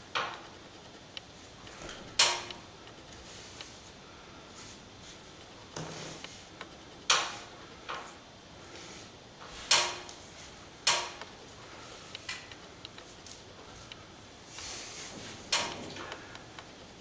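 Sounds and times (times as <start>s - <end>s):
plastering tool knocking and scraping: 5.7s - 6.4s.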